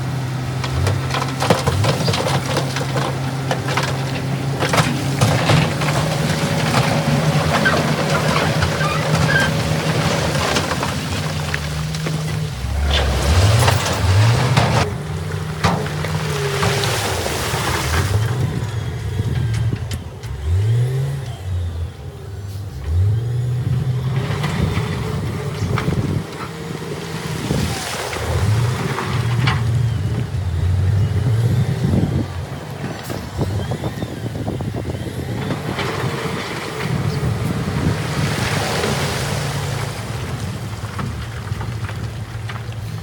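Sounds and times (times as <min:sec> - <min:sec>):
heavy diesel engine revving: 0:00.0 - 0:43.0.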